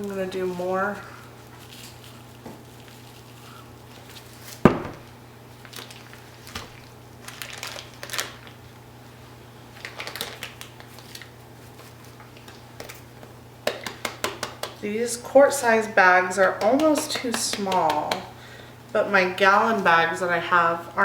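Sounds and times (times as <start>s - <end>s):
sharp knock: 4.7s - 5.1s.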